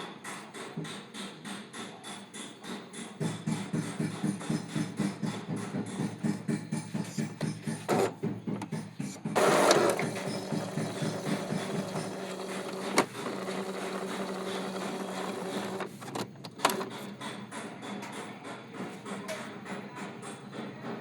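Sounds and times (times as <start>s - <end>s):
loud noisy printer burst: 9.3s - 17.6s
printer clicks: 9.4s - 17.1s
printer motor hum: 9.4s - 17.1s.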